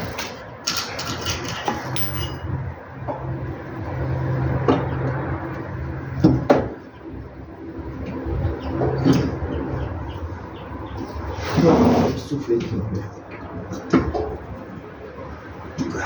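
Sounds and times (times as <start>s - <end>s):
metal tools clinking and knocking: 0.0s - 2.5s.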